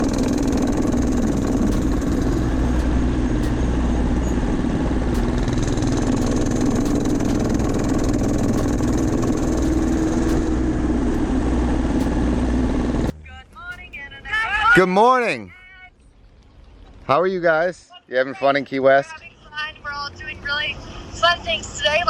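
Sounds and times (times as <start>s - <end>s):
low engine hum: 0.0s - 14.8s.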